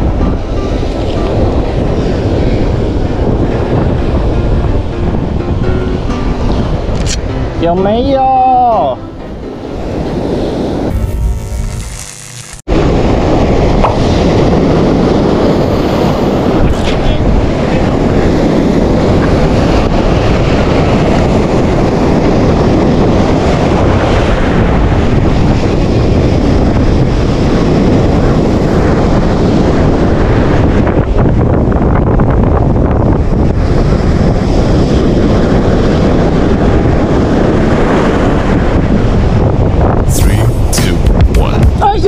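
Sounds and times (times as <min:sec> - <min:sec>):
sea waves: 0:00.0 - 0:11.4, 0:12.7 - 0:25.7
wind buffeting microphone: 0:00.0 - 0:12.0, 0:12.6 - 0:42.0.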